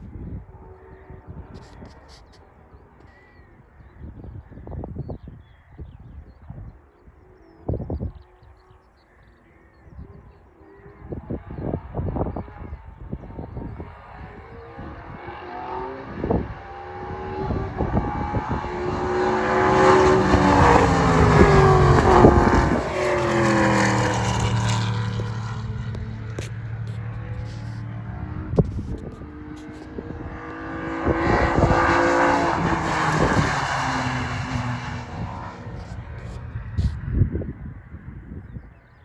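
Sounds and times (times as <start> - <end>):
race car passing by: 13.6 - 37.5.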